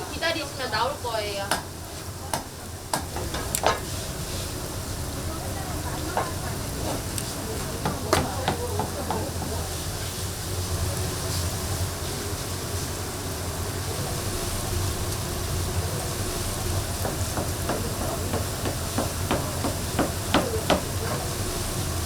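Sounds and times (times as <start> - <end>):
low hum and hiss: 0.0 - 8.8
sharp knocks and taps: 7.8 - 9.5, 17.0 - 21.2.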